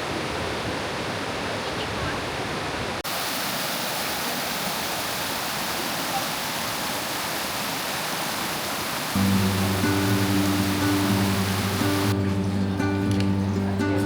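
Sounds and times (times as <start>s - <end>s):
water flowing over rocks: 2.9s - 12.2s.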